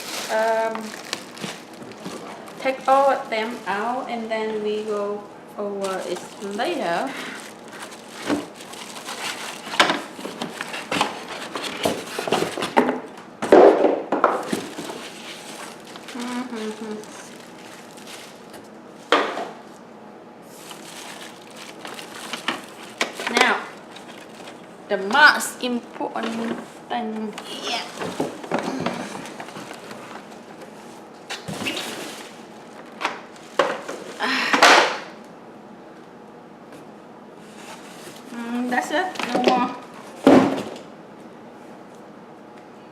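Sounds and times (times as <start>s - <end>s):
packaging rustling: 0.0s - 3.9s, 5.8s - 12.8s, 14.4s - 19.8s, 20.5s - 24.8s, 27.5s - 34.2s.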